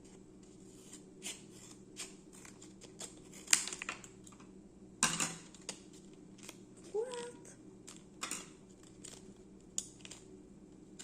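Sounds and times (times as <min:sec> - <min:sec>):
scissors snipping plastic packaging: 0:01.2 - 0:04.0.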